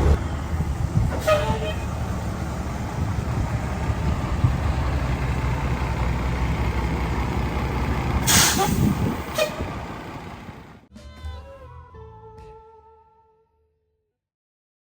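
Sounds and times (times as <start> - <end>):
truck engine rumbling: 0.0 - 10.9
air brake hiss: 8.2 - 9.6.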